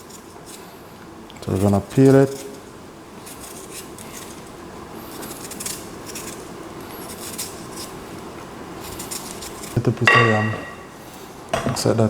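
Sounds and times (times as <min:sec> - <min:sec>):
knife scraping yam skin: 0:00.0 - 0:00.8, 0:01.4 - 0:10.1.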